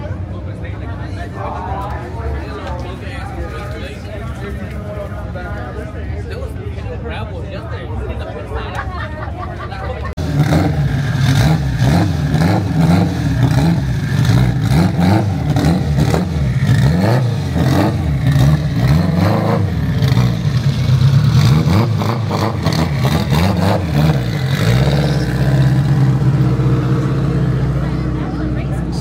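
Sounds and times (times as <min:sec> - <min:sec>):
car engine revving hard: 0:10.2 - 0:28.0.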